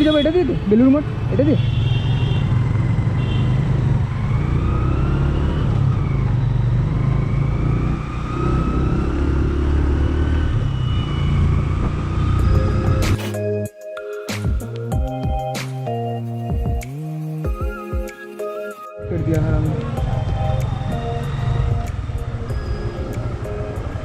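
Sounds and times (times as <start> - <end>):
motorcycle engine rumbling: 19.0 - 24.0.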